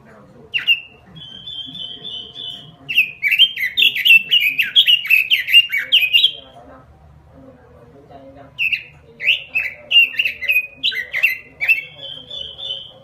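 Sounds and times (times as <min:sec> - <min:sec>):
bird singing trills and whistles: 0:00.5 - 0:06.4, 0:08.6 - 0:13.0.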